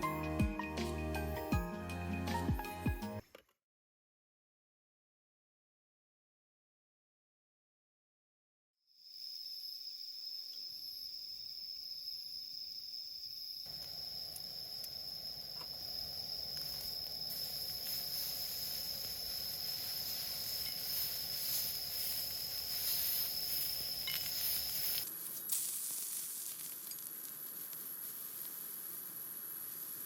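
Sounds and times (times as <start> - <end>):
insect trilling: 8.9 - 30.0
crackling hiss: 13.7 - 30.0.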